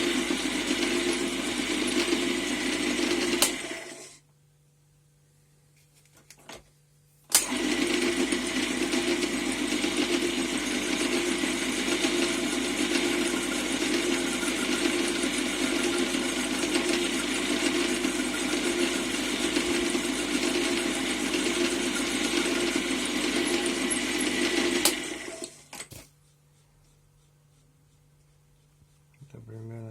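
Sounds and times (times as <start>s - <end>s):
lathe motor running: 0.0s - 4.1s, 7.4s - 25.6s.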